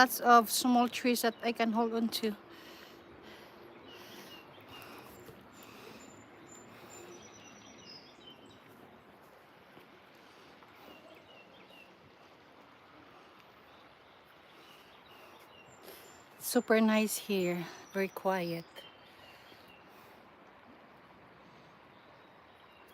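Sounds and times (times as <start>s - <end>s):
low outdoor hiss: 0.0s - 22.9s
bird chirps: 3.7s - 8.8s.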